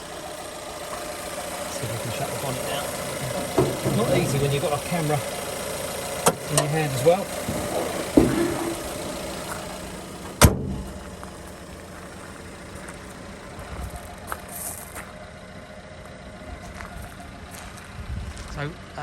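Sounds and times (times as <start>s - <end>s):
truck bonnet slammed shut: 3.4s - 4.5s, 7.4s - 9.5s, 10.2s - 11.1s.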